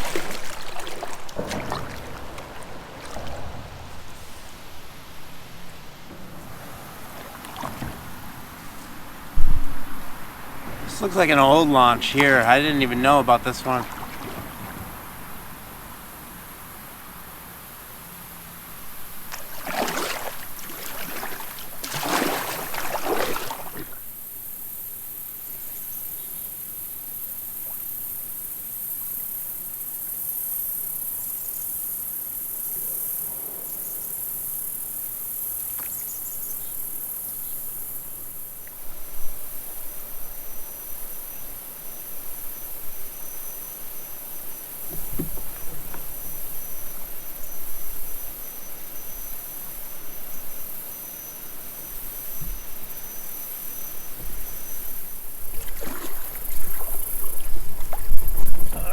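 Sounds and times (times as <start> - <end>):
kayak paddle strokes: 0.0 - 16.3, 18.7 - 24.1, 42.8 - 48.3, 51.4 - 58.9
water splashing: 0.0 - 16.3, 18.9 - 24.1, 44.7 - 47.3, 51.8 - 58.9.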